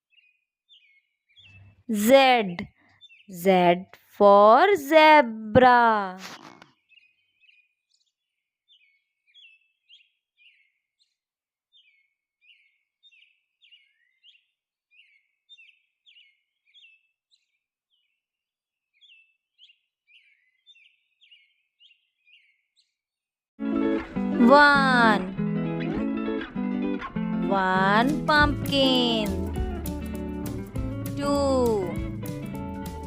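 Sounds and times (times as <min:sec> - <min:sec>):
faint birds chirping: 0:00.0 - 0:04.2, 0:06.3 - 0:18.3, 0:18.9 - 0:23.0.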